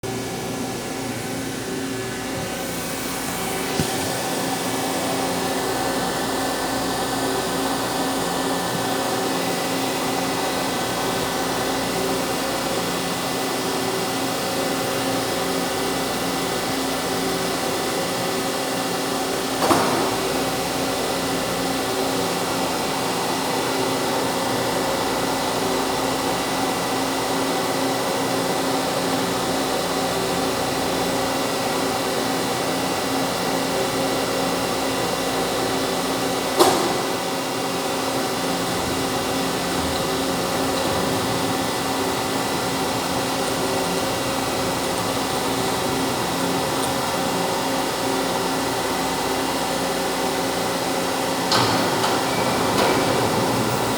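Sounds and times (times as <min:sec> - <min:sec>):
machine whirring: 0:36.2 - 0:53.9.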